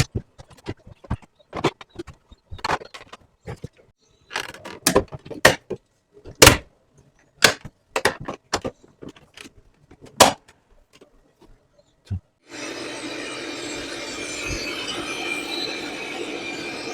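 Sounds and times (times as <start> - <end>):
plastic parts clicking and knocking: 0.0 - 12.3.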